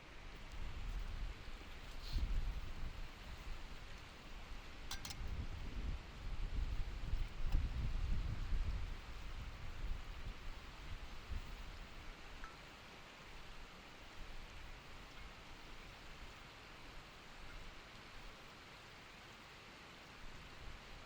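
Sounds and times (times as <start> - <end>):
stream flowing over rocks: 6.1 - 21.0.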